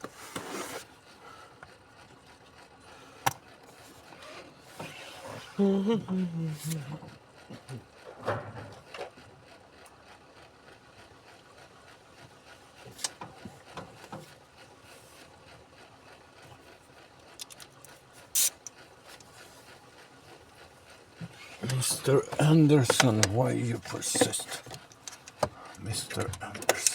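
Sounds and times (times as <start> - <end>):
hand tool clicking and scraping: 17.4 - 19.3, 21.4 - 26.9.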